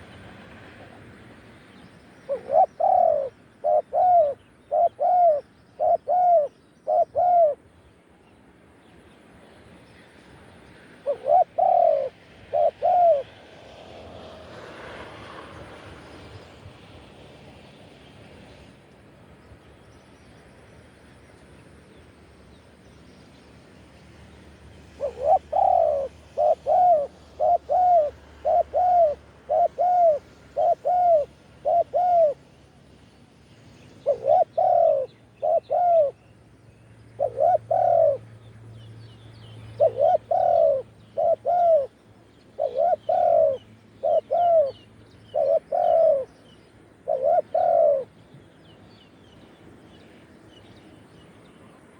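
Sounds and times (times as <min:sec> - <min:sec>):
dove cooing: 0:02.3 - 0:07.6, 0:11.0 - 0:15.4, 0:24.8 - 0:32.5, 0:34.0 - 0:36.2, 0:37.2 - 0:38.3, 0:39.6 - 0:42.0, 0:42.6 - 0:48.2.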